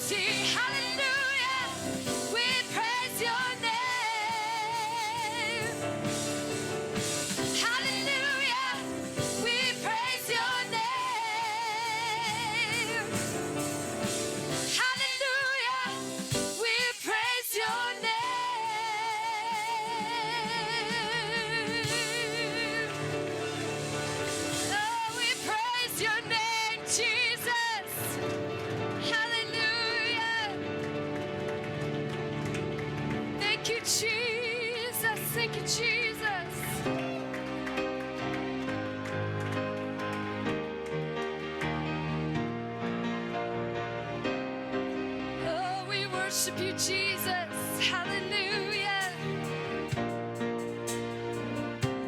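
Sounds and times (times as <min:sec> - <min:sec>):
person singing with vibrato: 0:00.0 - 0:06.1, 0:07.4 - 0:13.6, 0:14.5 - 0:28.3
sustained accompaniment: 0:20.0 - 0:52.0.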